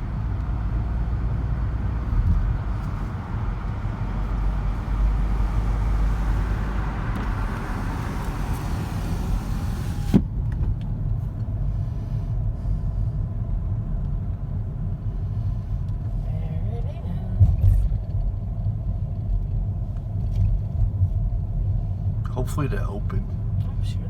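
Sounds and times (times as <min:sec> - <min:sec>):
car low rumble: 0:00.0 - 0:24.0
road hiss: 0:02.7 - 0:10.2.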